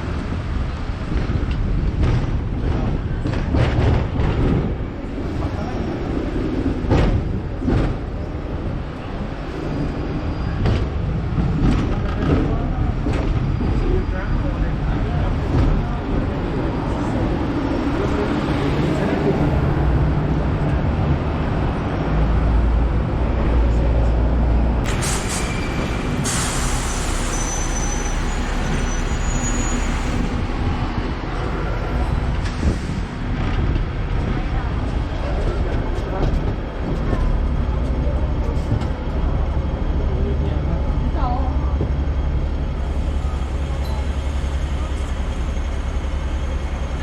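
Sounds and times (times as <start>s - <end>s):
tram rumbling on rails: 0.0s - 47.0s
loud hiss: 24.9s - 30.2s.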